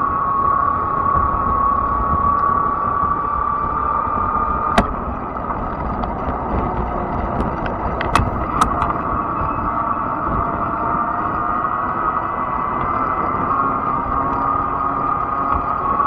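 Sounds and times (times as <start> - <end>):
wind and tire rumble: 0.0 - 16.0
sharp clicks: 4.8 - 5.2, 8.1 - 9.0
electric bike motor whine: 7.8 - 16.0.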